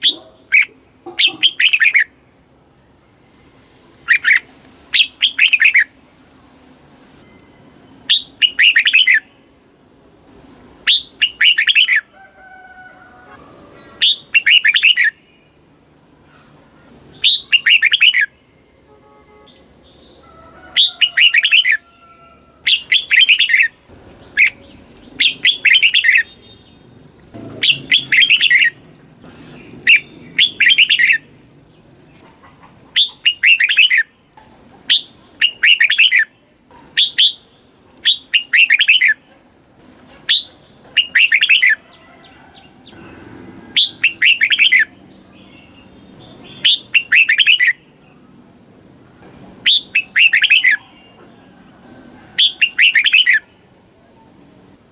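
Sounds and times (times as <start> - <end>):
bird singing chirping phrases: 0.0 - 2.2, 4.0 - 6.0, 7.2 - 9.5, 10.8 - 12.2, 13.8 - 32.2, 33.0 - 34.2, 34.9 - 39.2, 40.3 - 41.9, 42.8 - 51.3, 52.4 - 54.9.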